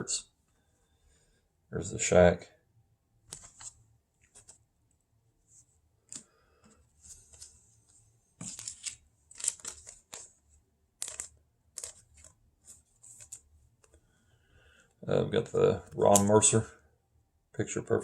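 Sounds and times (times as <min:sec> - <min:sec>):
cards sliding into plastic sleeves: 0:03.3 - 0:04.6, 0:08.4 - 0:10.3.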